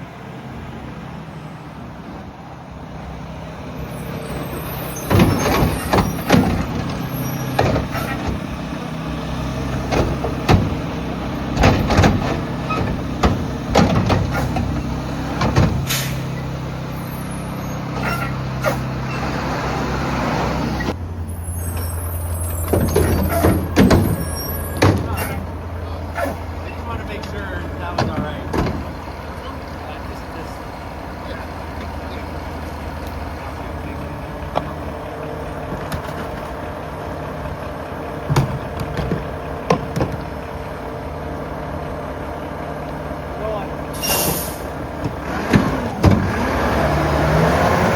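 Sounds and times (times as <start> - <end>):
garbage truck diesel engine running: 0.0 - 47.9
bins banging and clattering: 4.9 - 8.6, 9.6 - 16.5, 22.6 - 29.0, 38.2 - 40.5, 45.0 - 46.5
air brake hiss: 15.8 - 16.3, 43.9 - 44.8.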